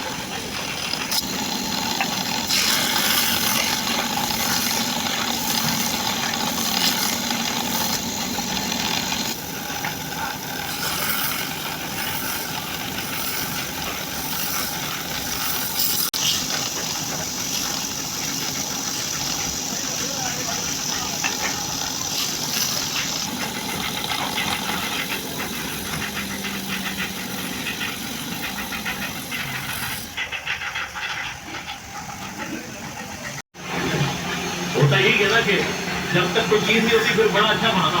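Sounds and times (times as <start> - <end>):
woodturning lathe running: 0.0 - 38.0
rough high-pitched scraping: 1.0 - 16.7, 17.5 - 30.4.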